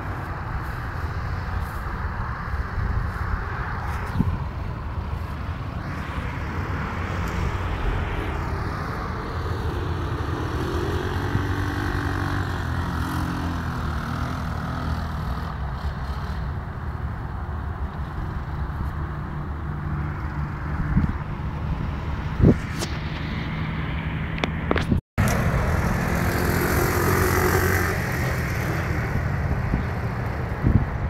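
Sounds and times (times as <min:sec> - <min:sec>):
atv engine running: 0:25.2 - 0:30.4.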